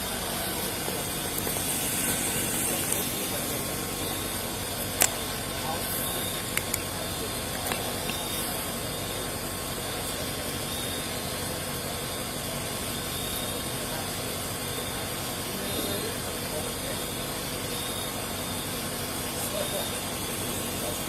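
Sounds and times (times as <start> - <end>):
steady hissing noise: 0.0 - 21.0.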